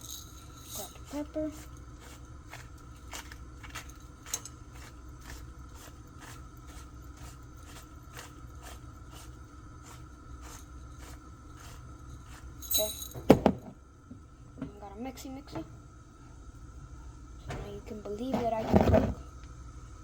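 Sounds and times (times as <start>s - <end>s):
egg frying in oil: 0.0s - 12.6s
steady low hum: 0.0s - 20.0s.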